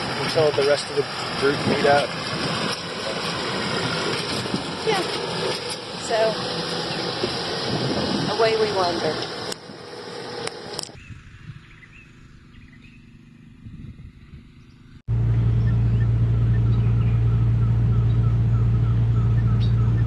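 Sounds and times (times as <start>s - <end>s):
low machine hum: 5.8s - 20.0s
bird chirping: 11.0s - 20.0s.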